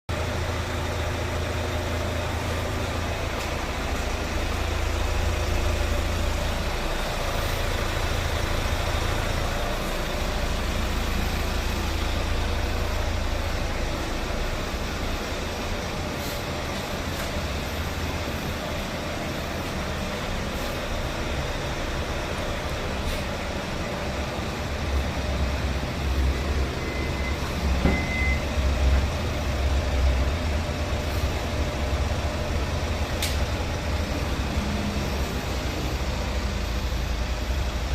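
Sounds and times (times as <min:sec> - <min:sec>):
vehicle engine idling: 0:00.1 - 0:37.9
short high beeps: 0:26.8 - 0:28.5.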